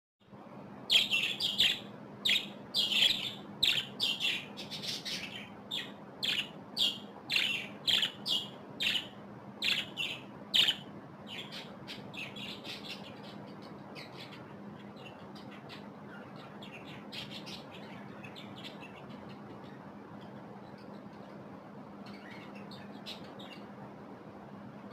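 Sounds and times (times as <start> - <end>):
steady low hum: 0.2 - 24.9
budgerigars chirping: 0.9 - 21.3, 22.0 - 23.7.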